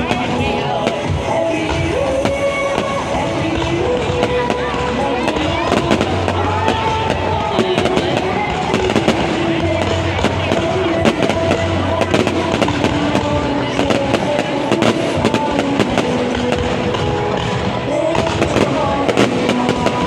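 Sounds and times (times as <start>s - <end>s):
fireworks bangs and crackles: 0.0s - 20.0s
music with bass: 0.0s - 20.0s.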